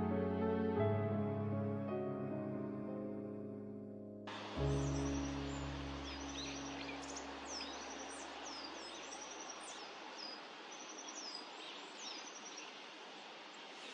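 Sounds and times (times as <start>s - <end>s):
low musical chord: 0.0s - 8.4s
small birds calling: 4.3s - 13.9s
steady outdoor hiss: 4.3s - 13.9s.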